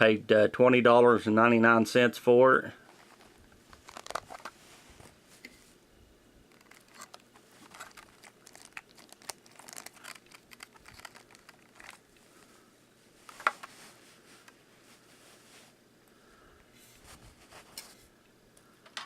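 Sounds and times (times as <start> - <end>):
plastic packaging crinkling: 2.8 - 5.2, 6.5 - 12.2.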